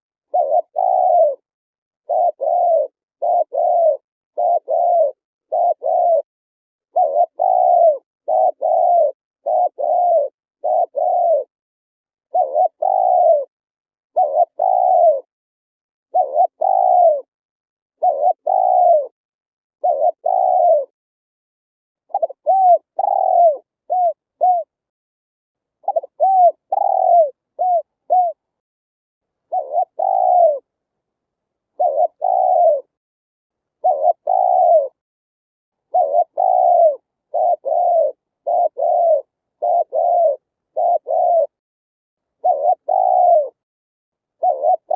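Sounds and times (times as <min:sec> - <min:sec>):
dove cooing: 0:00.3 - 0:06.3, 0:06.9 - 0:11.5, 0:12.3 - 0:13.5, 0:14.1 - 0:15.3, 0:16.1 - 0:17.3, 0:18.0 - 0:19.2, 0:19.8 - 0:20.9, 0:22.1 - 0:24.7, 0:25.8 - 0:28.4, 0:29.5 - 0:30.7, 0:31.8 - 0:33.0, 0:33.8 - 0:35.0, 0:35.8 - 0:41.6, 0:42.4 - 0:43.6, 0:44.4 - 0:44.9.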